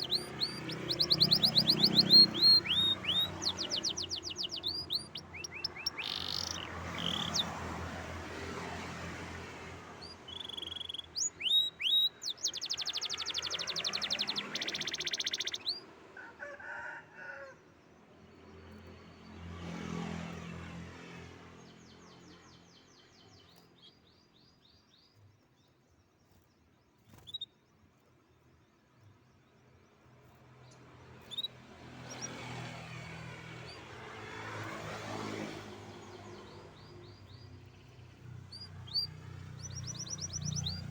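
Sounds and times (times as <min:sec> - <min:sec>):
canary singing: 0:00.0 - 0:07.8, 0:09.9 - 0:16.0, 0:31.1 - 0:32.4, 0:36.2 - 0:40.9.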